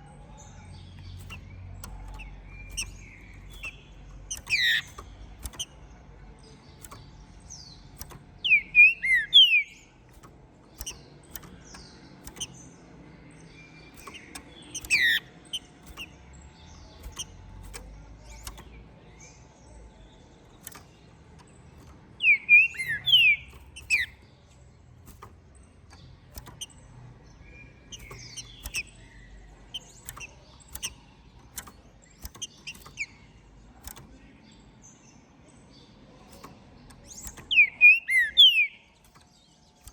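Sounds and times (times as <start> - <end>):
faint clicks: 0.4 - 39.9
bird singing whistled notes: 0.9 - 5.8, 6.8 - 10.0, 13.4 - 16.1, 22.2 - 24.2, 37.0 - 39.2.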